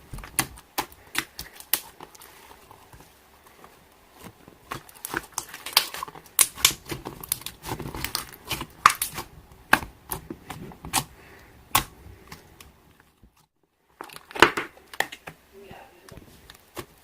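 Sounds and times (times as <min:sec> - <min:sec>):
slime squishing: 0:00.0 - 0:13.4.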